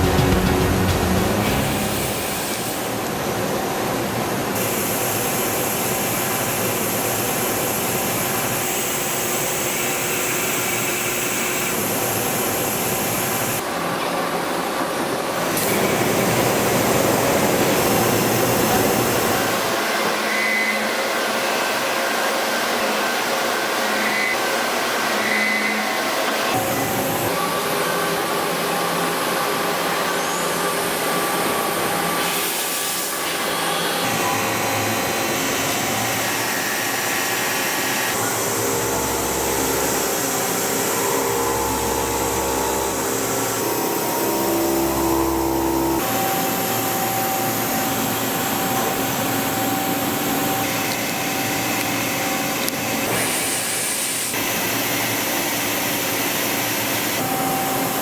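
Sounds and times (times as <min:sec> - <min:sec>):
machine tool hiss and whine: 0:01.3 - 0:58.0.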